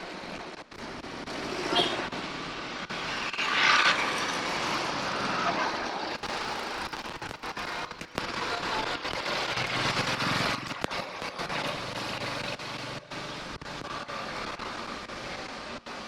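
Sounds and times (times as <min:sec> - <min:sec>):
radio interference crackles: 0:00.0 - 0:16.0
traffic and road noise: 0:00.0 - 0:16.0
motor vehicle engine close by: 0:03.6 - 0:15.0.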